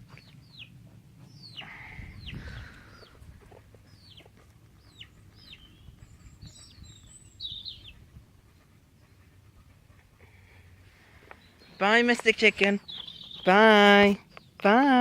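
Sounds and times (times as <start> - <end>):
chickens chirping and clucking: 0.0 - 10.1.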